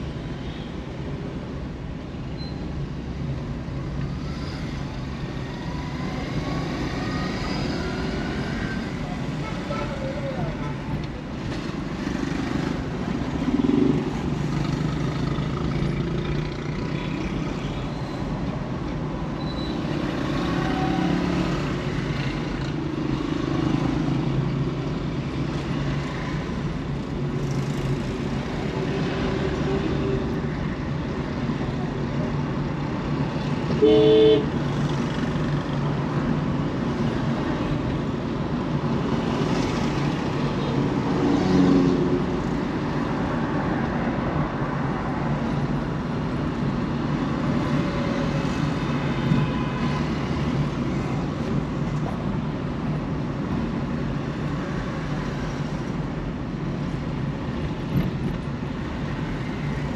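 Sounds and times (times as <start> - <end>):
road traffic rumble: 0.0 - 59.9
car horn honking: 33.8 - 34.5.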